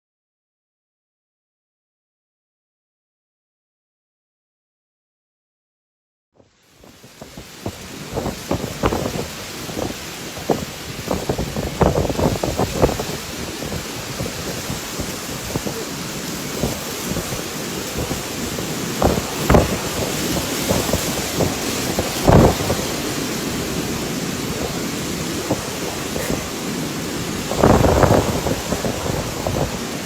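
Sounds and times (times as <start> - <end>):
storm wind and rain rushing: 6.5 - 30.0
wind gusts buffeting microphone: 6.7 - 30.0.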